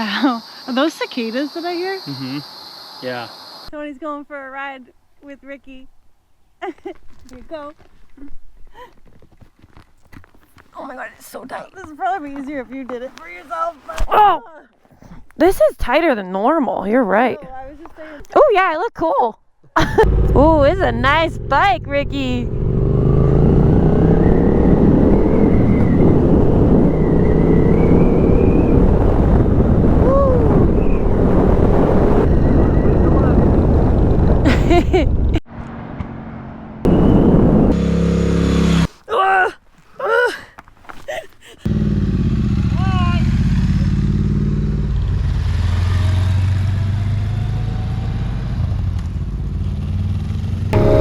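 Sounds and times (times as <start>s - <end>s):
motorcycle engine running: 20.0s - 24.2s, 41.7s - 45.8s
rising and falling tone: 20.0s - 33.4s, 50.8s - 51.0s
wind noise on microphone: 20.0s - 35.4s, 36.9s - 37.8s.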